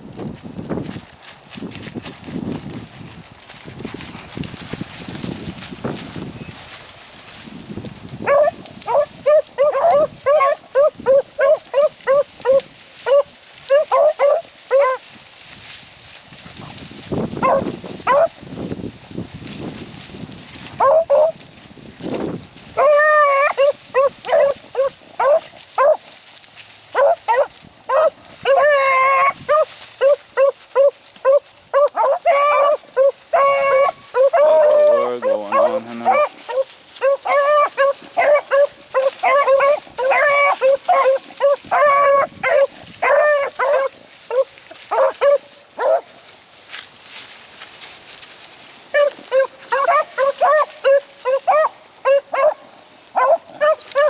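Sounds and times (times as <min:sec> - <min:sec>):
hounds baying and yelping: 0:08.2 - 0:15.1, 0:17.4 - 0:18.4, 0:20.7 - 0:21.4, 0:22.8 - 0:26.1, 0:26.9 - 0:46.2, 0:48.9 - 0:54.0.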